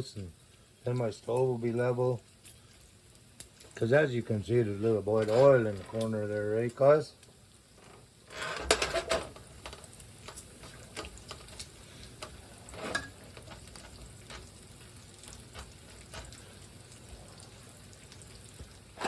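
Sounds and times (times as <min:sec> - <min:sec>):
food sizzling in a pan: 0:00.0 - 0:19.0
utensil clattering against pan: 0:12.2 - 0:14.7.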